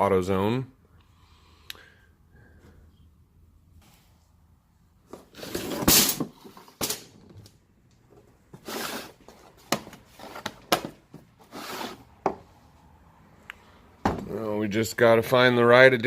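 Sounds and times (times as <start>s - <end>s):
tool kit parts clattering: 5.4s - 7.3s.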